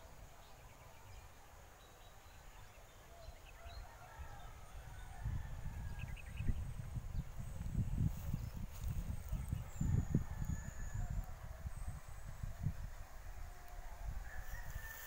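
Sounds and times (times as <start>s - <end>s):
wind buffeting microphone: 3.7s - 15.0s.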